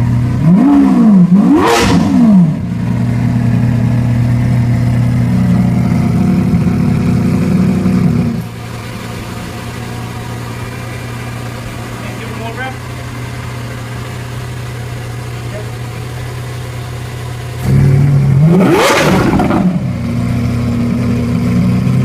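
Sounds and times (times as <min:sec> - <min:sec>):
car engine revving with pop: 0:00.0 - 0:09.1, 0:16.9 - 0:22.0
car engine idling: 0:00.0 - 0:22.0.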